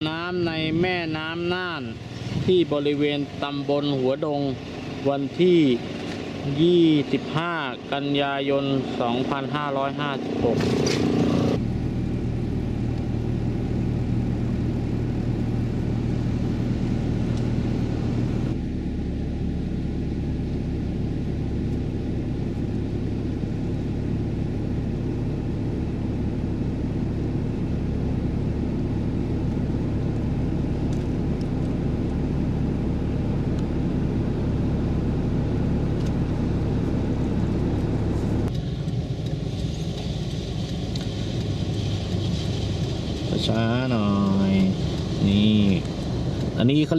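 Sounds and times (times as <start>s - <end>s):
vehicle engine droning: 0.0s - 46.9s.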